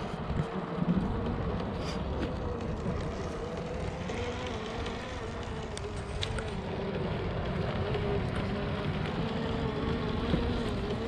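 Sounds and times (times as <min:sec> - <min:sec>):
electric motor and gearbox whine: 0:00.0 - 0:11.0
wind noise: 0:00.0 - 0:11.0
small clicks: 0:00.3 - 0:07.0.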